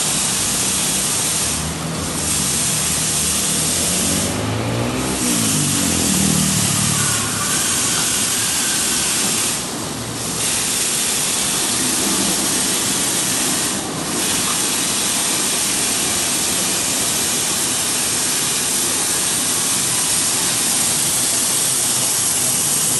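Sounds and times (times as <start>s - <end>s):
high-pressure water spray hissing: 0.0s - 22.9s.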